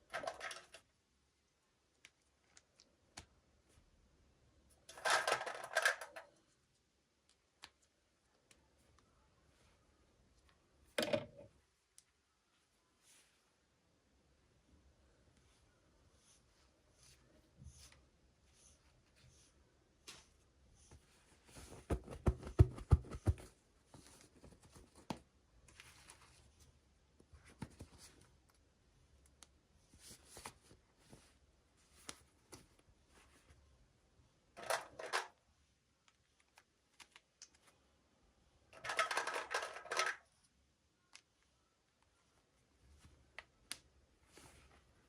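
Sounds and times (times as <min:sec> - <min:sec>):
plastic parts clicking and tapping: 0:00.0 - 0:00.9, 0:04.9 - 0:06.6, 0:34.6 - 0:35.4, 0:38.8 - 0:40.3.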